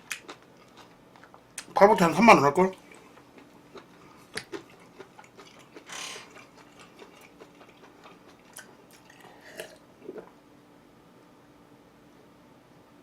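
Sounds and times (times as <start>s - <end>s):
chewing and mouth clicks: 0.0s - 1.8s, 2.7s - 10.3s.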